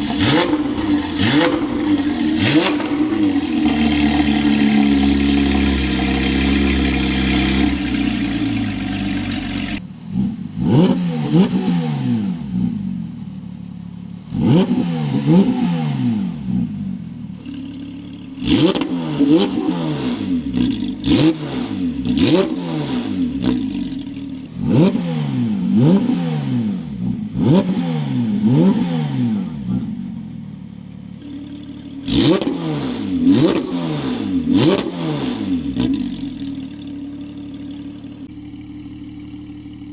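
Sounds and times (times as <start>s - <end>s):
sports car engine revving: 0.0s - 39.9s.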